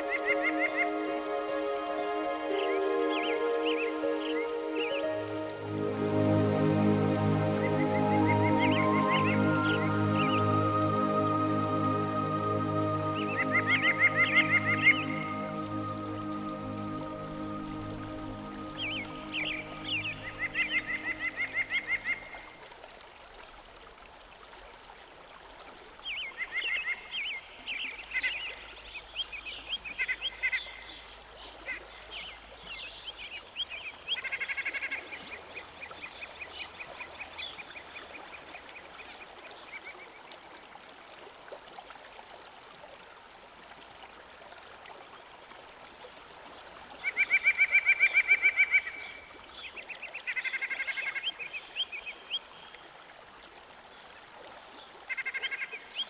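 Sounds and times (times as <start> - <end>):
birds chirping and trilling: 2.0 - 5.4, 12.9 - 22.3.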